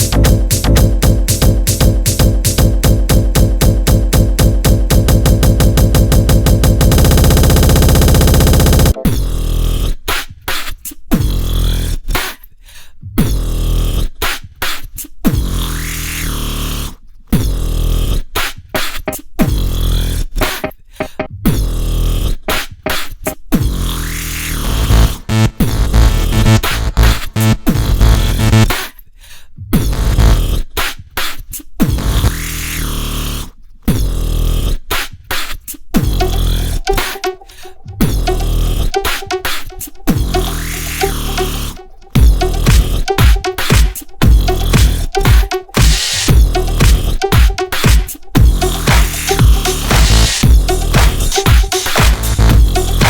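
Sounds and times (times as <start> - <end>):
dubstep electronic music: 0.0 - 9.6, 18.8 - 21.9, 22.5 - 28.8, 36.0 - 53.0
chopped bass and synth stabs: 0.0 - 9.9, 18.8 - 28.8, 29.8 - 30.6, 36.0 - 53.0
rising and falling pitch sweep: 36.2 - 43.8.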